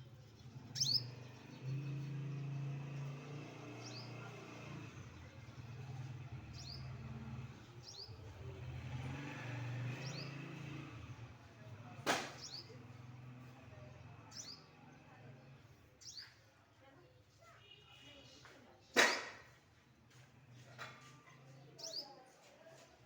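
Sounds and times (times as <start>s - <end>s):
small bird chirping: 0.0s - 3.1s, 5.1s - 8.4s, 12.4s - 13.0s, 14.3s - 14.8s, 16.0s - 16.5s, 20.6s - 22.4s.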